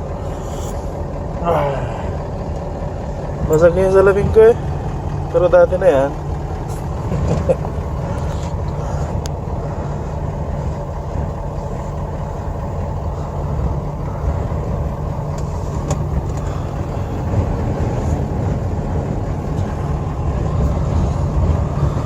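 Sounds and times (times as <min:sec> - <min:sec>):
strong wind rumbling: 0:06.2 - 0:22.0.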